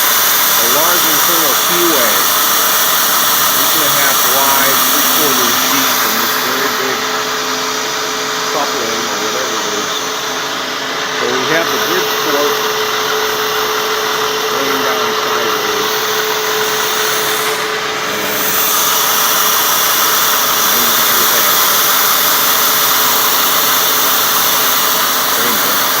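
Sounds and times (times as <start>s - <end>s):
cutting hiss: 0.0s - 26.0s
milling machine whine: 0.0s - 26.0s.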